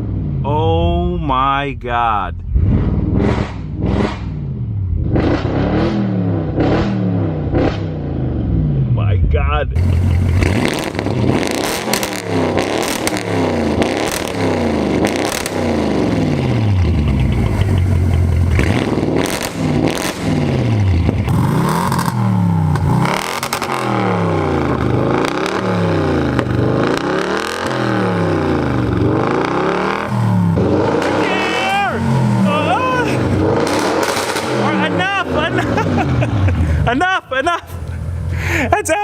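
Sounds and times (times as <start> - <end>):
car engine revving: 0.0 - 38.7
exhaust crackles: 8.6 - 39.0.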